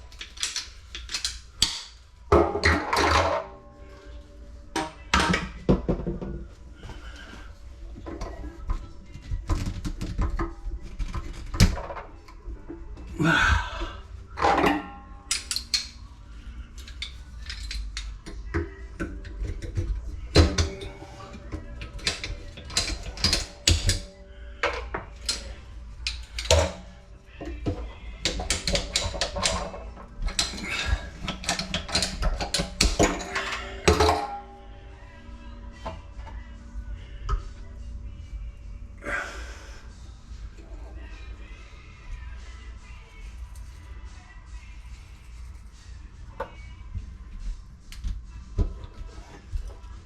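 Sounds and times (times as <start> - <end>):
tools and pipe clinking: 0.0 - 4.1, 14.4 - 16.1, 16.7 - 34.7.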